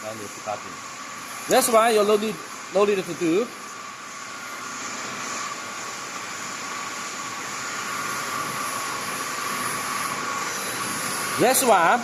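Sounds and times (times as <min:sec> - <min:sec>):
constant high whine: 0:00.0 - 0:12.0.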